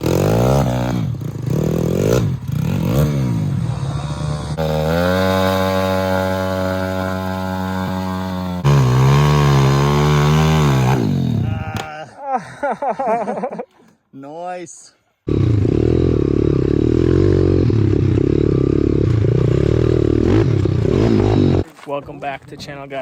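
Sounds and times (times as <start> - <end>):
pit bike engine revving: 0.0 - 11.9, 15.3 - 21.7.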